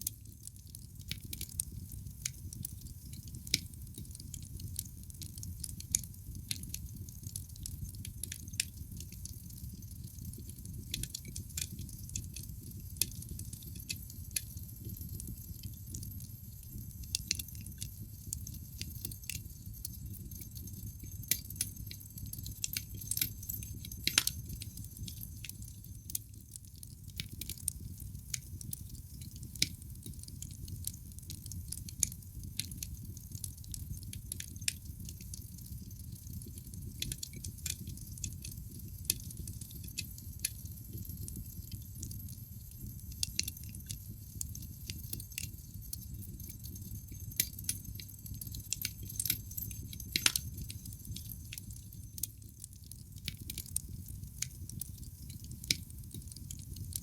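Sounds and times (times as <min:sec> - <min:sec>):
logs crackling and popping: 0:00.2 - 0:57.0
fire flames rumbling: 0:43.6 - 0:56.8.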